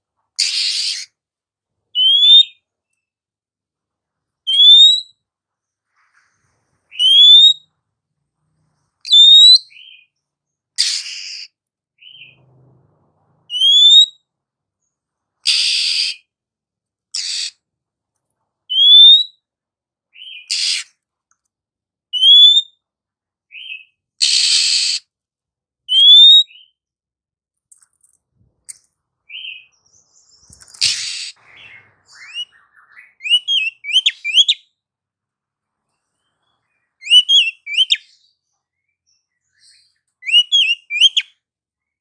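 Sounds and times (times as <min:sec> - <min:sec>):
bird rising whistles: 0:06.9 - 0:07.6, 0:09.1 - 0:09.9, 0:13.5 - 0:14.1, 0:30.8 - 0:34.6, 0:40.2 - 0:41.2
harsh rasping bird churrs: 0:30.7 - 0:32.5.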